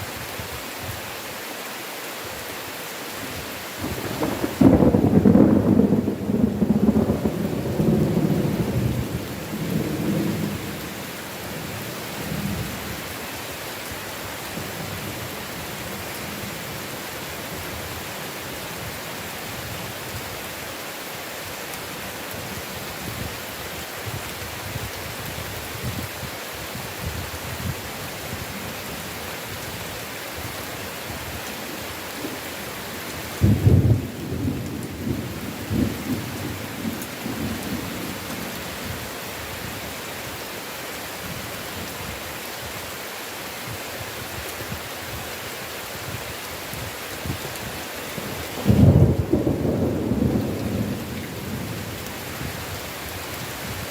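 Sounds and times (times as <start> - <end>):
heavy rain hissing: 0.0 - 53.9
thunder rolling: 3.8 - 10.6, 48.6 - 51.8.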